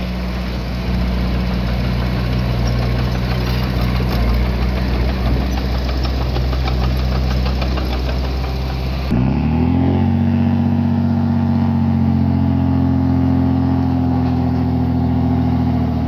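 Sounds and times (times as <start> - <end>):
diesel engine running: 0.0 - 16.0
fast ticking clatter: 0.2 - 9.1.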